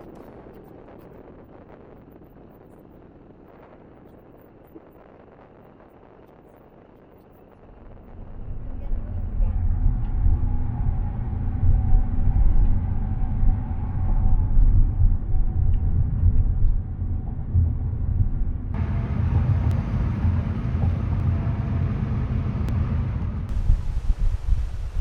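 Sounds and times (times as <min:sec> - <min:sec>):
moving vehicle rumble: 0:08.0 - 0:25.0.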